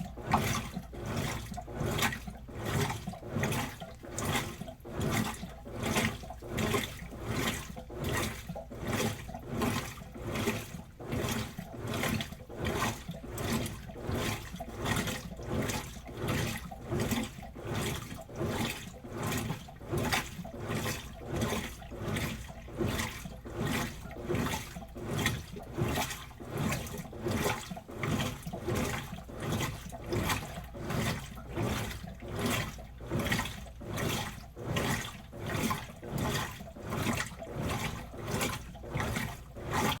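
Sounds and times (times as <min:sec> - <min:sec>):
washing machine sloshing: 0:00.0 - 0:40.0.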